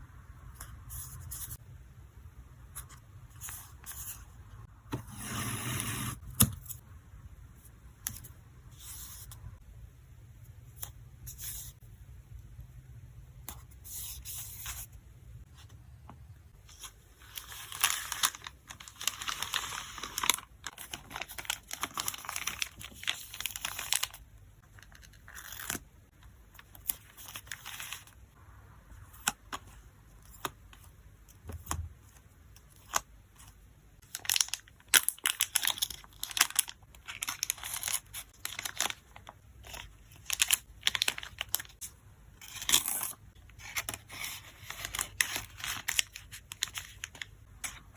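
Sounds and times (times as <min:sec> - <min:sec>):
packaging rustling: 0:17.2 - 0:24.2, 0:34.1 - 0:41.8, 0:42.4 - 0:47.8
plastic crinkling and tearing: 0:17.3 - 0:24.2, 0:34.0 - 0:41.8, 0:42.4 - 0:47.8.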